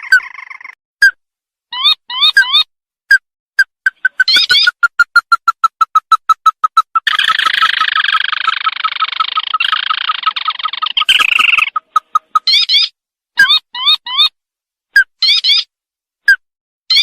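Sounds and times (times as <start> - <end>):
harsh bird chatter: 0.0 - 0.8, 3.9 - 14.3
fast run of short bird notes: 3.8 - 12.9
swooping bird notes: 3.8 - 14.0.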